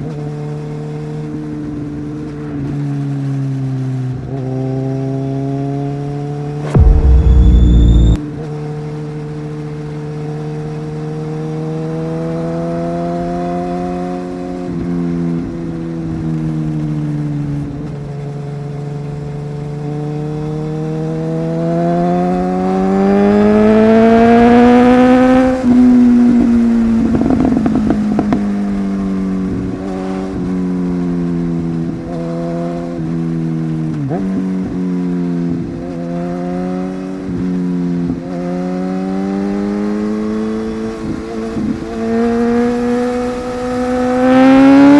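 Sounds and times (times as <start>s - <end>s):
motorcycle engine accelerating: 6.6s - 8.2s.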